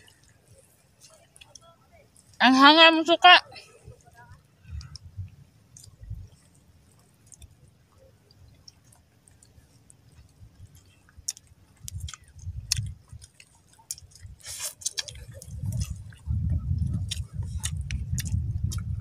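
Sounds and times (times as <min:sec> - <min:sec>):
chewing and wet mouth smacks: 0:04.7 - 0:05.1, 0:05.7 - 0:19.0.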